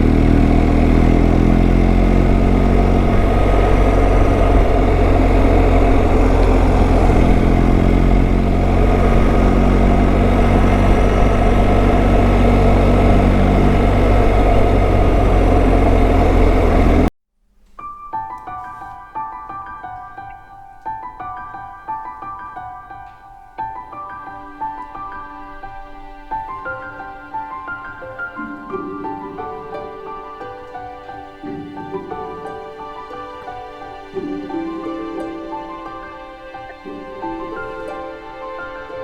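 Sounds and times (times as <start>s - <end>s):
motorcycle engine cruising: 0.0s - 17.1s
road and wind noise: 0.0s - 17.1s
soft piano music: 0.0s - 17.1s, 17.8s - 39.0s.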